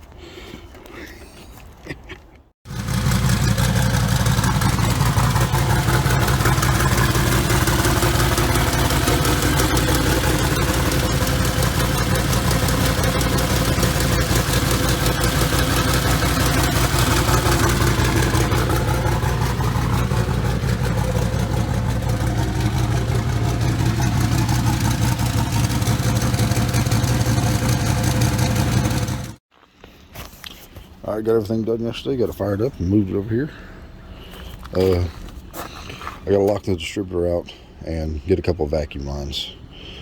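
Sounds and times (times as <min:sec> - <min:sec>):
truck engine idling: 0:02.7 - 0:29.4.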